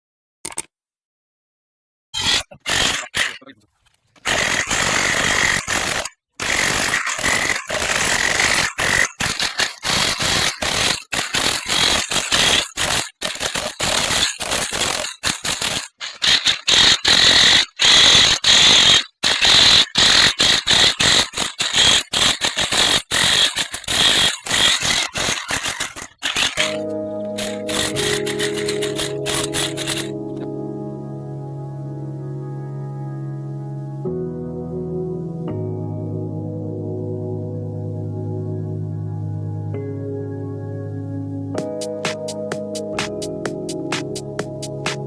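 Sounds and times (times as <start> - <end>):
harsh mechanical noise: 4.2 - 30.4.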